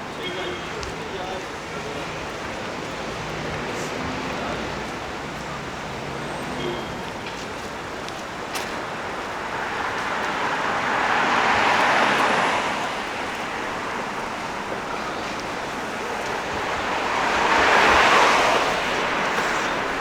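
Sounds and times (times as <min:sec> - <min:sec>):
vehicle passing: 0:08.8 - 0:20.0.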